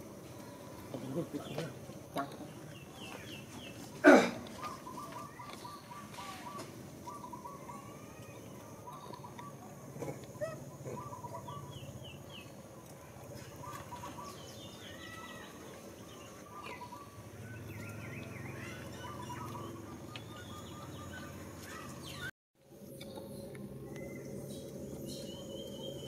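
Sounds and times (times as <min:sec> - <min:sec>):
birds chirping: 0:00.0 - 0:26.0
low outdoor hum: 0:00.0 - 0:26.0.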